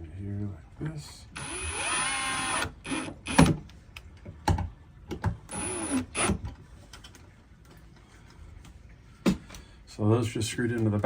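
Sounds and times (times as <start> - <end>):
cordless drill driving screws: 1.4 - 3.6, 5.5 - 6.4.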